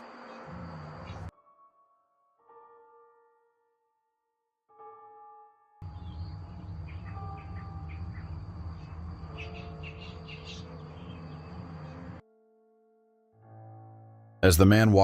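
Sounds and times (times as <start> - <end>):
birds chirping: 0.0 - 1.3, 5.8 - 12.2.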